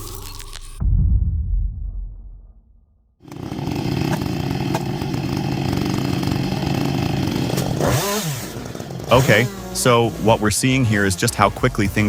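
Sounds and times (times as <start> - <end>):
chainsaw engine running: 3.2 - 12.0.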